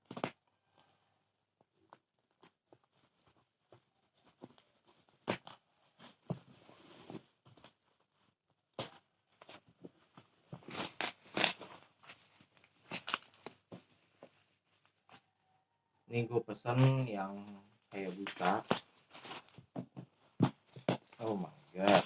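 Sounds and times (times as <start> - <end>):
packaging rustling and crackling: 1.9 - 14.1, 18.0 - 22.0.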